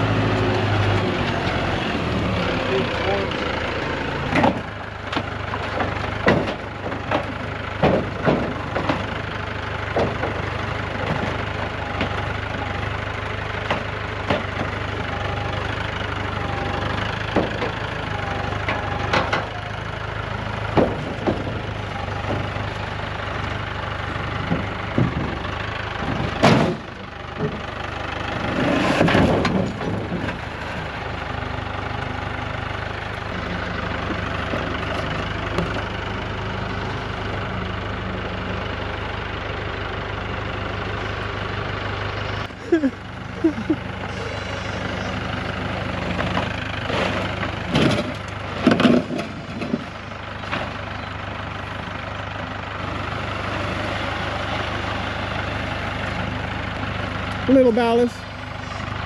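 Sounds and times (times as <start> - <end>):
engine idling: 0.0 - 59.0
metal clanks and knocks: 4.3 - 9.2, 9.9 - 12.2, 20.6 - 22.6, 26.0 - 27.6, 28.8 - 30.4, 46.2 - 50.8.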